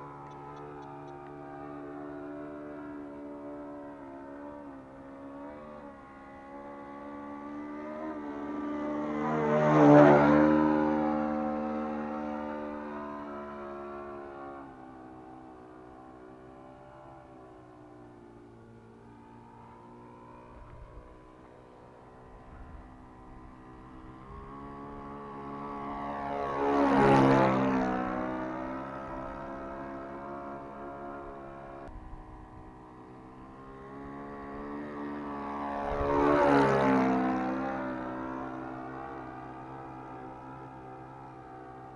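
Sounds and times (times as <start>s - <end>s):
model airplane engine flying past: 0.0s - 41.9s.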